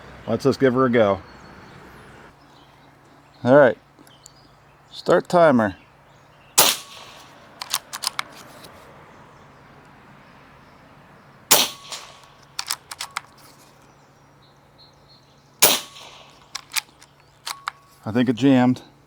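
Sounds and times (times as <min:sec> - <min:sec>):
air rifle shot crack: 0:06.6 - 0:08.3, 0:11.5 - 0:13.3, 0:15.6 - 0:17.7
rifle action clicks: 0:06.6 - 0:08.7, 0:11.5 - 0:13.8, 0:15.6 - 0:17.9.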